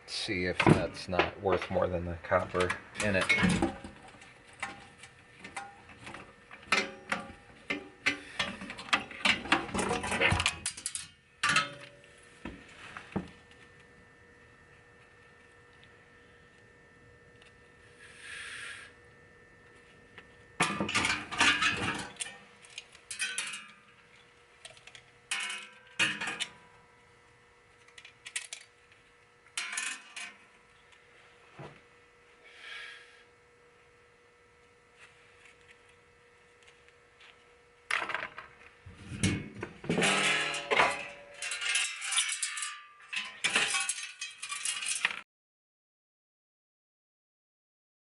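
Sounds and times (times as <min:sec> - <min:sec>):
metal parts clinking and clattering: 0:06.6 - 0:11.9, 0:20.6 - 0:26.6, 0:27.9 - 0:28.7, 0:29.6 - 0:30.4, 0:39.2 - 0:45.2.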